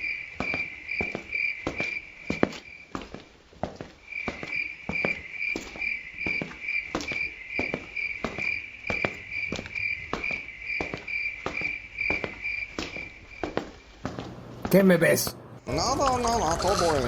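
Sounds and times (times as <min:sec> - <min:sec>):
cricket chirping: 0:00.0 - 0:02.8, 0:04.1 - 0:13.9
footsteps walking: 0:06.4 - 0:15.5.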